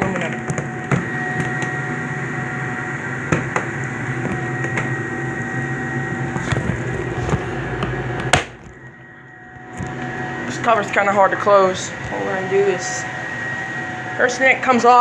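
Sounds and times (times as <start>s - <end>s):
furnace blower motor humming: 0.0s - 15.0s
sharp knock: 7.2s - 8.9s.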